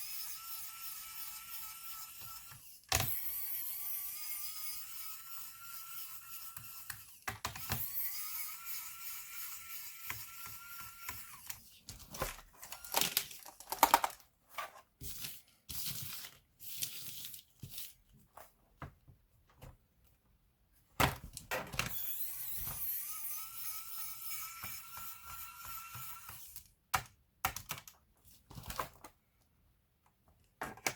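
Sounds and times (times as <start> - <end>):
plastic parts clicking and scraping: 10.8 - 18.6, 26.5 - 30.9.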